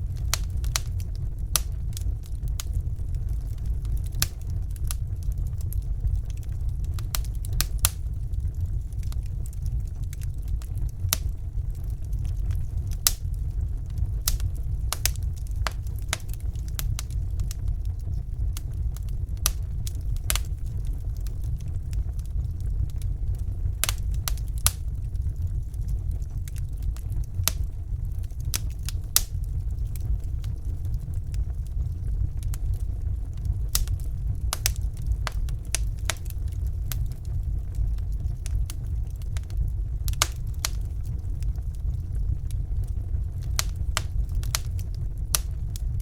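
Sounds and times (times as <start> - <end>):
fire crackles and pops: 0.0 - 46.0
fire rumbling in fireplace: 0.0 - 46.0.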